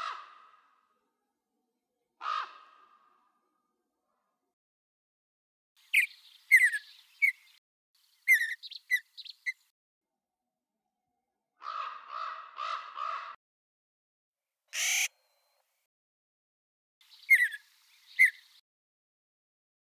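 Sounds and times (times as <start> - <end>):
downward-sliding bird chirps: 14.8 - 15.1
harsh bird calls: 14.8 - 15.1, 17.1 - 18.6.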